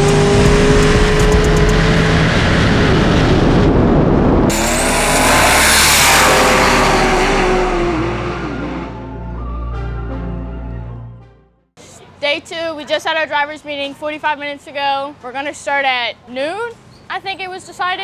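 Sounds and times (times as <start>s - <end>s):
diesel racing engine at full throttle: 0.0s - 9.5s.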